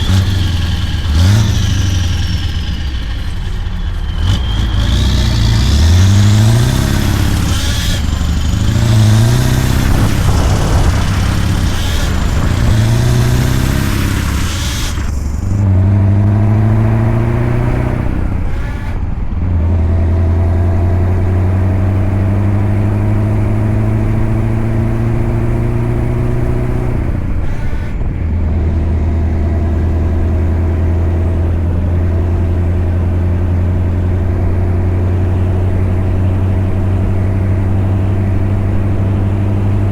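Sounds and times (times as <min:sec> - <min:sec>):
diesel truck engine revving: 0:00.0 - 0:39.9.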